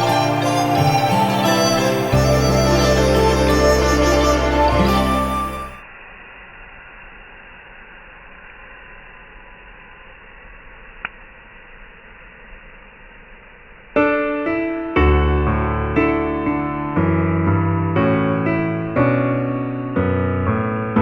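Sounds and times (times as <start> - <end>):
background music: 0.0 - 5.8
piano music: 0.0 - 5.8, 14.0 - 21.0.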